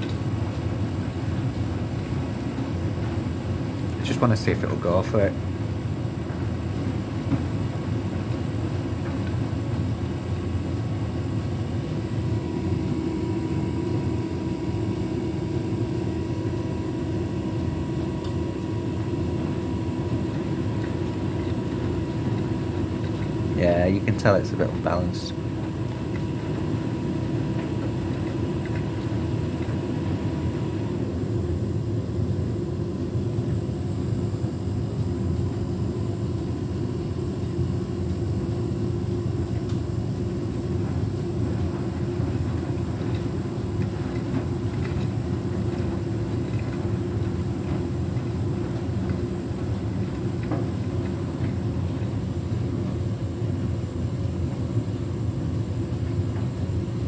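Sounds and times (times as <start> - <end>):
washing machine drum rumbling: 36.8 - 57.0.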